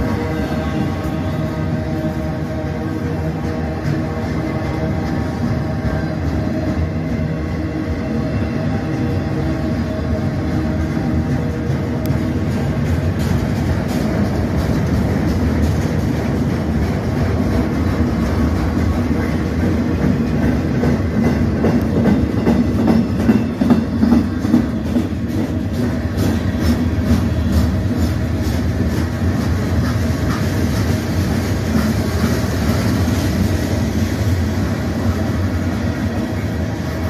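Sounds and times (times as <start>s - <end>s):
freight train rumbling past: 0.0s - 37.0s
wheels clicking over rail joints: 11.6s - 32.8s.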